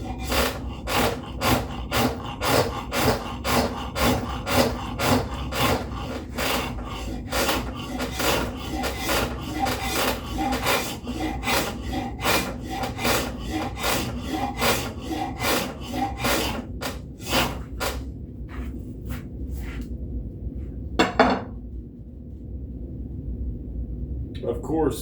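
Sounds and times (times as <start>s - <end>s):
wood rasp filing wood: 0.0s - 18.0s.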